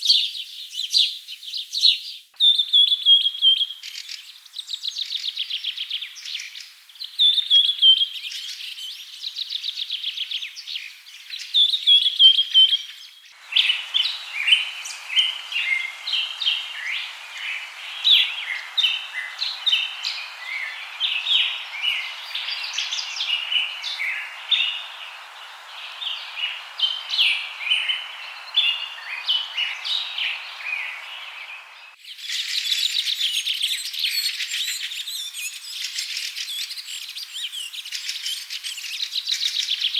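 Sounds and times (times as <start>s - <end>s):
birds chirping and trilling: 10.1s - 39.9s
steady hiss: 13.3s - 33.3s
chorus of many birds calling: 13.3s - 39.9s.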